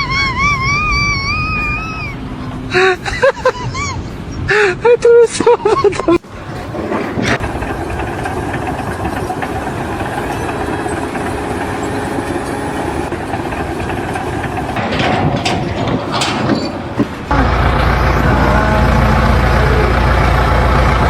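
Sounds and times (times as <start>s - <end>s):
heavy engine running: 6.2s - 21.0s
deep engine rumble: 13.0s - 21.0s.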